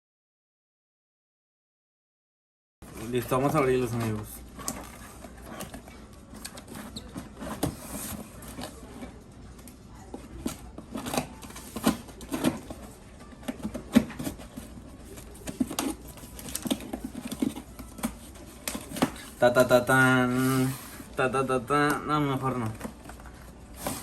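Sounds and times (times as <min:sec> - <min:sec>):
packaging rustling and knocking: 0:02.8 - 0:09.2, 0:10.1 - 0:21.1.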